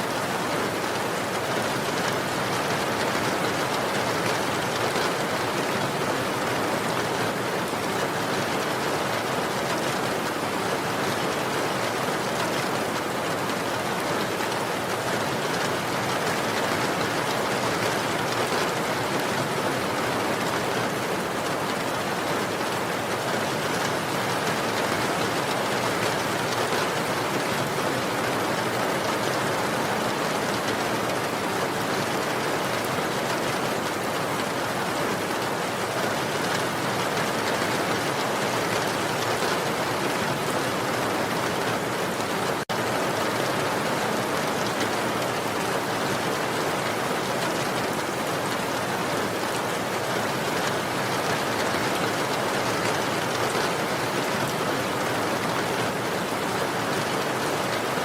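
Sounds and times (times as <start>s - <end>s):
rain hissing on a surface: 0.1s - 58.0s.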